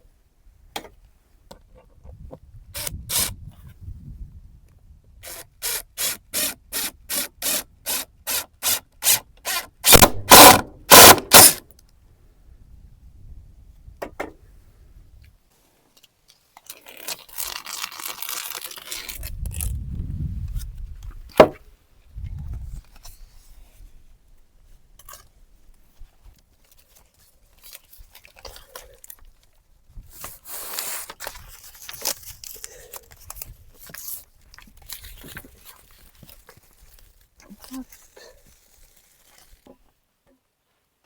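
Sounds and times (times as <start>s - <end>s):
wind rumble on microphone: 1.6s - 5.3s, 12.0s - 15.4s, 19.2s - 21.4s, 22.0s - 24.2s
material rustling and tearing: 16.5s - 19.8s, 30.3s - 39.7s.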